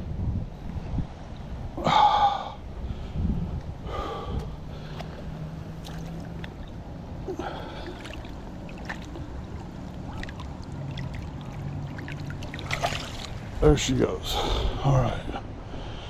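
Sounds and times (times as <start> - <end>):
water sloshing and splashing: 4.7 - 14.4.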